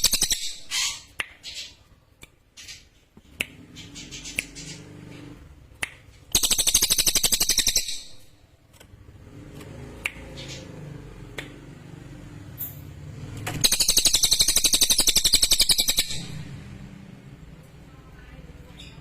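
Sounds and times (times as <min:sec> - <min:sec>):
bird chirping and trilling: 0:00.0 - 0:01.9, 0:02.6 - 0:05.1, 0:06.3 - 0:08.4, 0:13.6 - 0:16.8.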